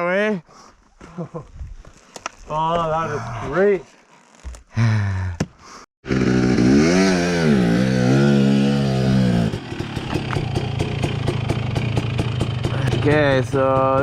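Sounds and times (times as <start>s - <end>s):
dirt bike engine revving: 6.0s - 14.0s.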